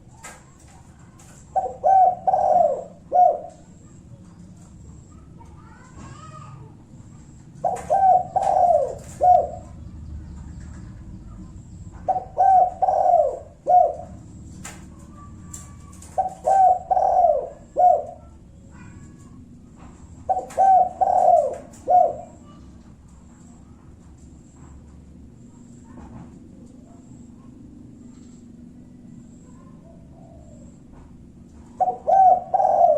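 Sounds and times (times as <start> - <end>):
dove cooing: 0.0 - 32.9.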